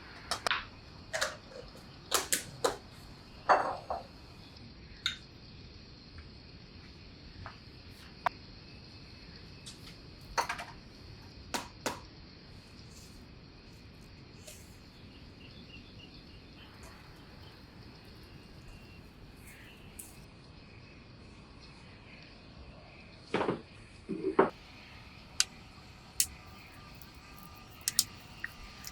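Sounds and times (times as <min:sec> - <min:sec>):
faint bird chirps: 0:14.4 - 0:23.1.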